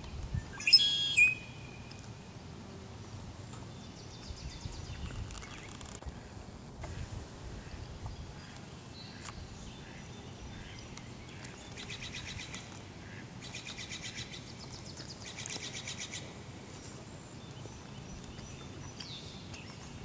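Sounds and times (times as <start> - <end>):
bird singing dry trills: 0.4 - 2.0, 3.7 - 6.0.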